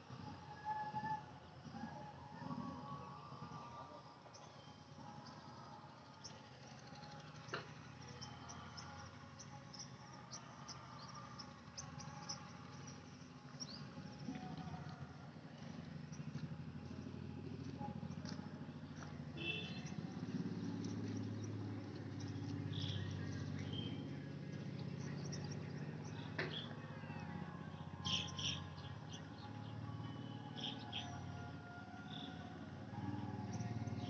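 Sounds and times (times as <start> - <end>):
birds and insects chirping: 20.9 - 26.7, 28.0 - 31.1.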